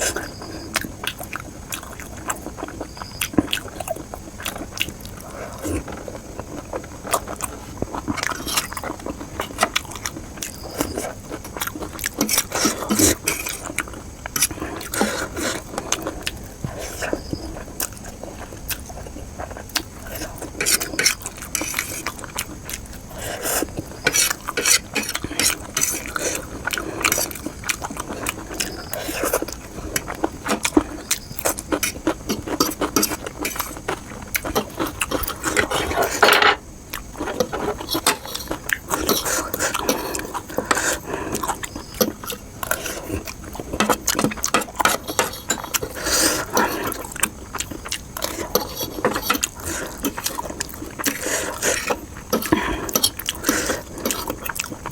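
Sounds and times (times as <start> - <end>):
chewing and mouth sounds: 0.0 - 54.9
cutlery clinking on a plate: 36.0 - 36.6.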